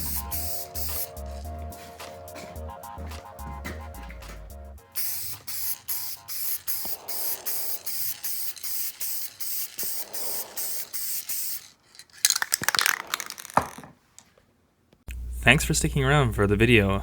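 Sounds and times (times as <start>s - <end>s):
hissing spray bursts: 0.0s - 2.4s, 4.8s - 11.8s
clattering: 11.2s - 14.4s.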